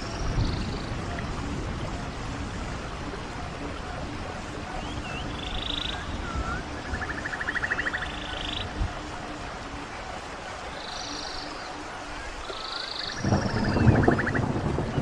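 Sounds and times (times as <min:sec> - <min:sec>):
running stream: 0:00.0 - 0:15.0
songbirds calling: 0:00.0 - 0:15.0
bird whistles and buzzing trill: 0:04.8 - 0:08.7.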